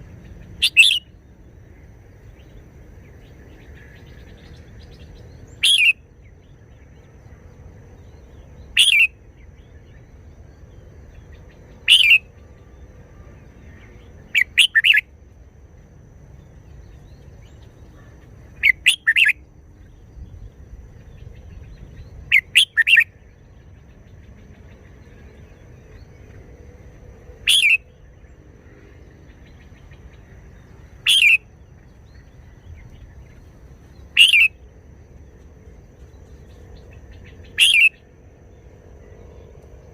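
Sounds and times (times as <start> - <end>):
bird singing short phrases: 0.3 - 1.2, 5.5 - 6.0, 8.7 - 9.7, 11.8 - 12.3, 14.2 - 15.0, 18.6 - 20.3, 21.1 - 23.2, 27.4 - 28.0, 31.0 - 34.6, 37.0 - 38.1.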